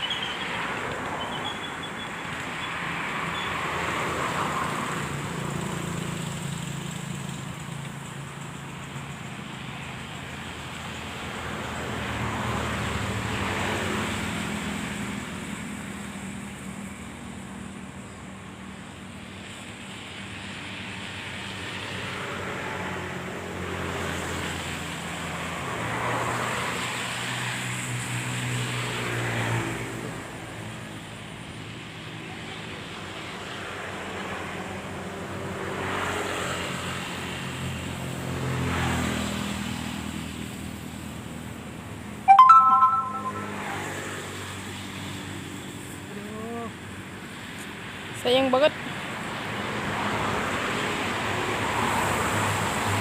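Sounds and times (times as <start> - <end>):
steady traffic hum: 0.0 - 42.2, 43.4 - 53.0
vehicles passing by: 0.0 - 53.0
brief loud pitched sound: 42.3 - 43.9.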